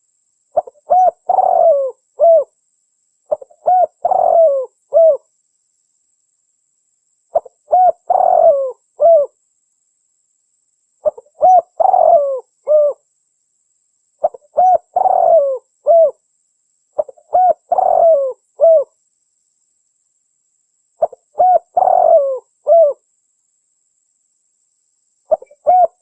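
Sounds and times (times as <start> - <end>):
dove cooing: 0.6 - 2.5, 3.3 - 5.2, 7.3 - 9.4, 11.0 - 13.0, 14.2 - 16.2, 17.0 - 19.0, 21.0 - 23.0, 25.3 - 26.0.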